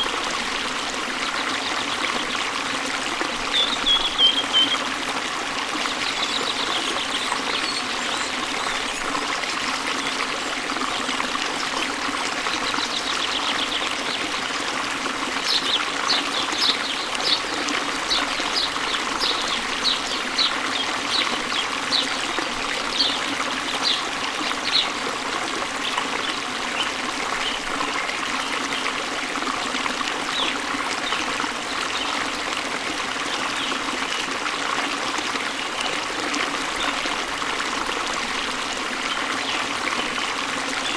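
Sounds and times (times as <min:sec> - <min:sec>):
stream babbling over stones: 0:00.0 - 0:40.9
bird chirping: 0:03.5 - 0:04.8.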